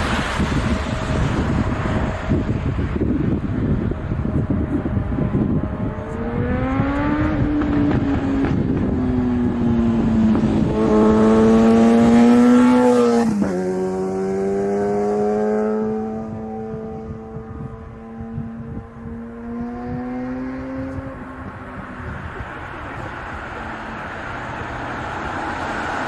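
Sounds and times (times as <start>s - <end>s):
jet engines roaring: 0.0s - 11.2s
droning tone sliding in pitch: 15.0s - 20.3s.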